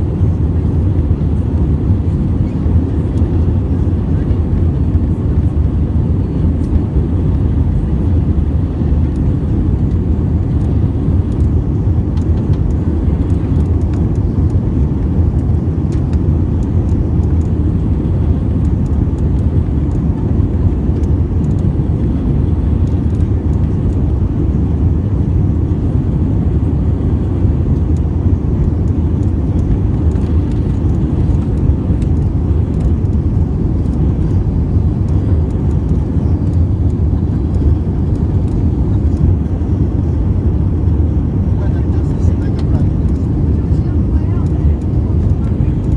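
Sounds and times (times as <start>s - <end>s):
airplane cabin engine rumble: 0.0s - 45.9s.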